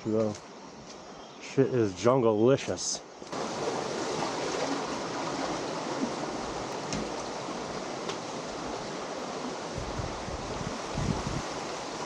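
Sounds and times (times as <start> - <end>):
water rushing: 3.3 - 12.0.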